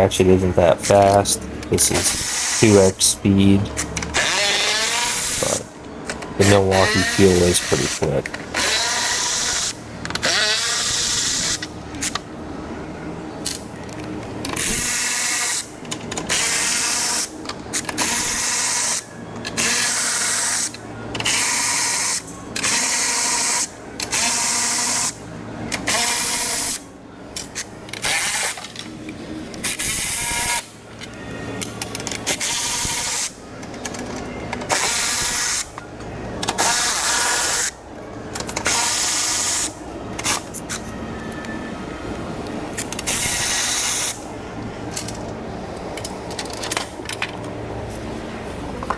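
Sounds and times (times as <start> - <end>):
cordless ratchet whirring: 3.8 - 12.2.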